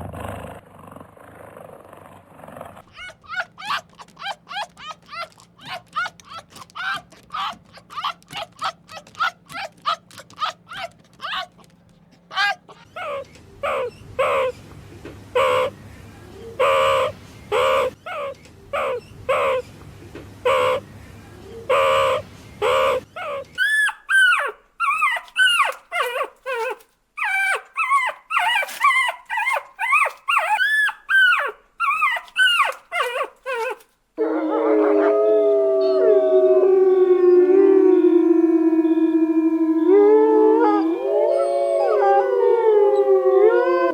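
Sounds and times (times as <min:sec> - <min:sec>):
puppies whining: 0:02.8 - 0:14.6, 0:21.7 - 0:33.8, 0:39.8 - 0:43.9
puppies yelping: 0:02.8 - 0:14.6, 0:21.7 - 0:33.8, 0:40.4 - 0:43.9
puppies howling: 0:02.9 - 0:14.5, 0:23.6 - 0:43.9
low hum: 0:34.2 - 0:43.9.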